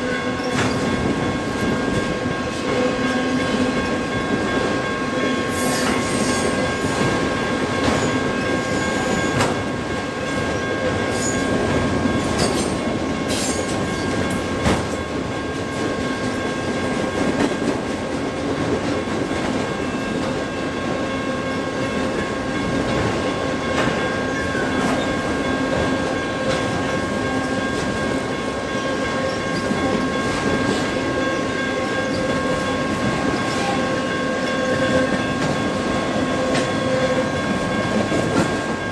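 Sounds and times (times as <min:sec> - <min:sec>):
steel wheels rumbling on rail: 0:00.0 - 0:38.9.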